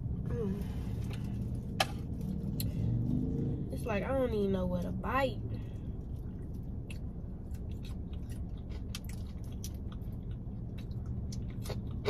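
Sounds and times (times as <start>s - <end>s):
steady low hum: 0.0s - 12.0s
crunchy chewing: 6.2s - 12.0s.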